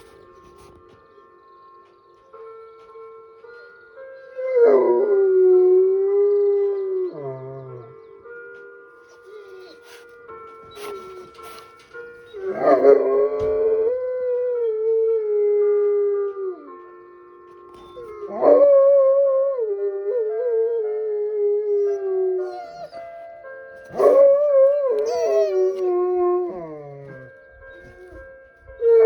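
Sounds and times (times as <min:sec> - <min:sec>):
dog howling: 0:09.1 - 0:10.0, 0:12.3 - 0:16.8, 0:17.8 - 0:23.1, 0:23.9 - 0:29.0
chime melody: 0:22.2 - 0:29.0.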